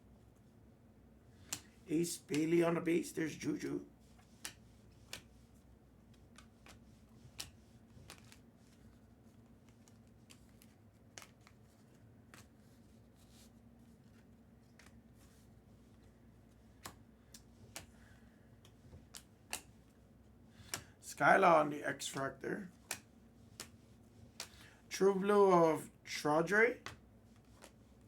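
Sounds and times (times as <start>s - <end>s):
low steady hum: 0.0s - 28.0s
trading cards clicking: 6.2s - 8.4s, 9.7s - 11.6s, 16.8s - 17.9s, 22.1s - 24.7s.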